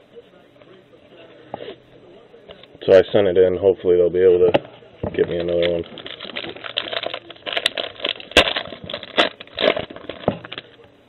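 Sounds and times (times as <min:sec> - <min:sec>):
wrapper crinkling and crackling: 0:05.1 - 0:10.9.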